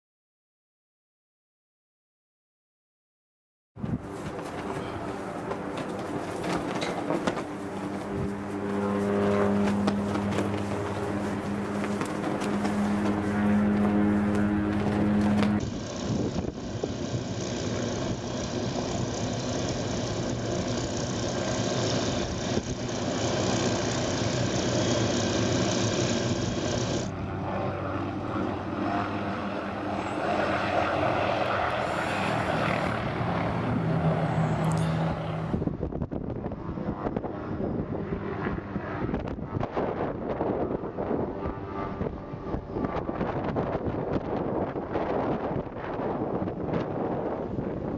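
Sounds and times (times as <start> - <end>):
wind noise on microphone: 3.8 - 20.8, 32.6 - 47.9
helicopter engine and rotor: 3.9 - 47.9.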